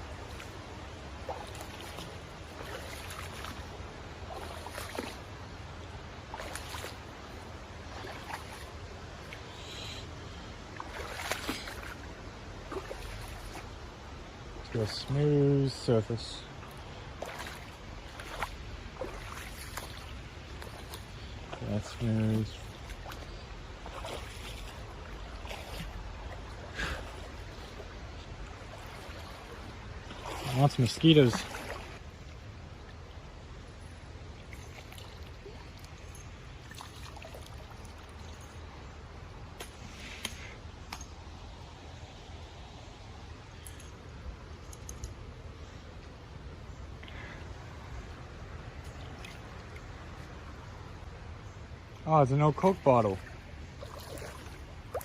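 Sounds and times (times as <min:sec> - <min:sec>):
splashing and crunching steps: 0:00.0 - 0:05.4, 0:06.2 - 0:09.4, 0:10.7 - 0:13.8, 0:16.5 - 0:32.0, 0:52.6 - 0:55.0
creek water rushing: 0:00.0 - 0:55.0.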